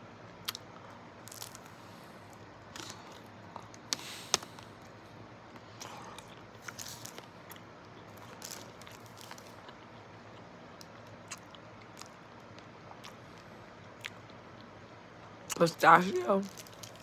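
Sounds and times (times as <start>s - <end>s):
soft chewing: 0.4s - 15.6s, 16.4s - 17.0s
sharp biting crunches: 1.3s - 2.0s, 2.8s - 4.9s.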